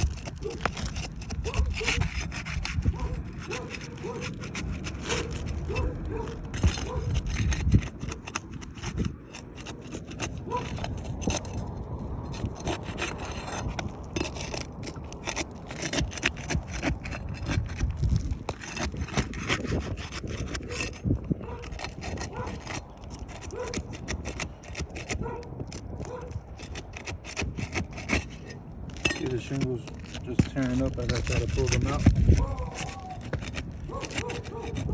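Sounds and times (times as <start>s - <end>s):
roof shingles tearing: 0.0s - 34.9s.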